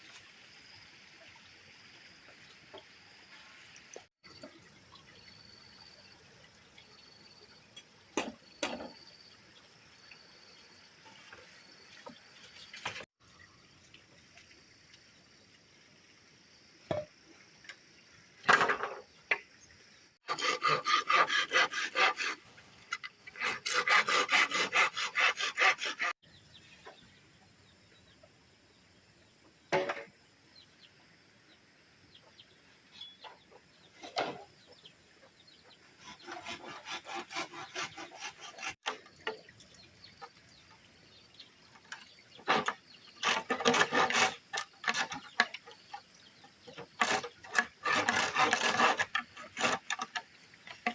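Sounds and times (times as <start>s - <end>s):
hand tool sawing wood: 20.2s - 22.4s, 23.0s - 26.2s, 36.0s - 39.0s, 42.4s - 45.5s, 46.8s - 50.2s.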